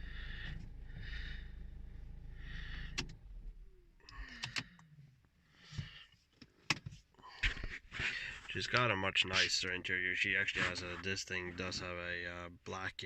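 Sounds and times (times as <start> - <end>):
diesel engine running: 0.0 - 4.2
engine switch click: 2.8 - 3.4.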